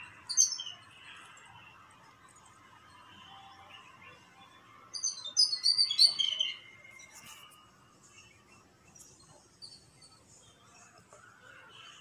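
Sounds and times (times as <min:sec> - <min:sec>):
bird chirping: 0:00.0 - 0:01.6, 0:02.2 - 0:12.0.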